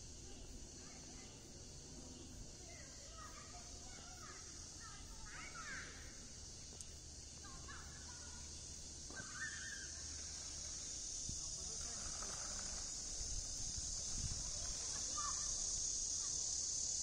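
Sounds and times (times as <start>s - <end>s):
steady high hiss: 0.0s - 17.0s
bird calls: 9.1s - 10.8s.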